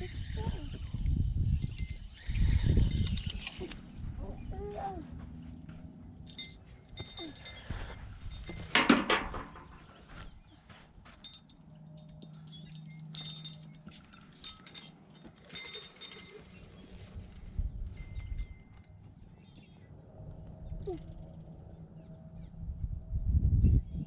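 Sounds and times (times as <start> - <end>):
small metal bell jingling: 1.6 - 2.1, 2.8 - 3.2, 6.3 - 9.8, 11.2 - 17.0, 17.9 - 18.8.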